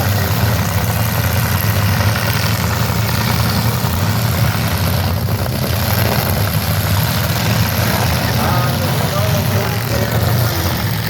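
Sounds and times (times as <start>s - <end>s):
car engines running: 0.0s - 11.0s.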